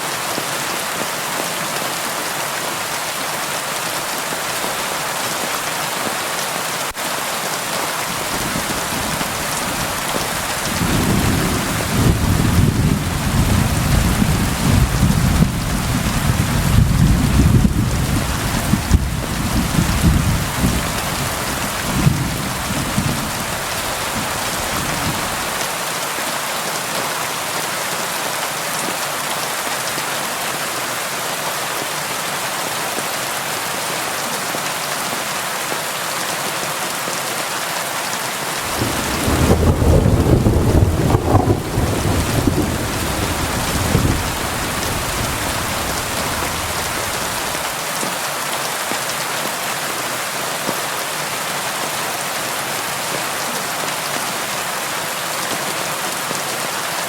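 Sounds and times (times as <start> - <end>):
rain on a window: 6.9 - 25.9, 38.6 - 50.0
low rolling thunder: 10.5 - 25.4, 38.7 - 47.6.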